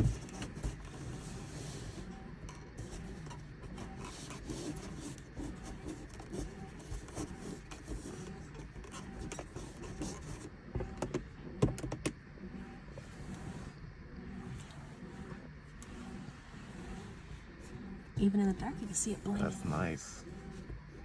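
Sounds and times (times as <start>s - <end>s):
low steady hum: 0.0s - 21.0s
small clicks and knocks: 8.6s - 12.2s.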